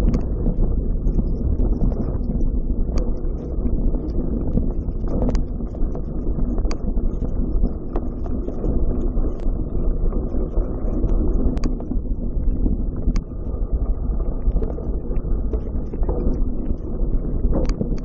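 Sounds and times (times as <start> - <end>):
low rumble: 0.0 - 18.0
wind buffeting microphone: 0.0 - 18.0.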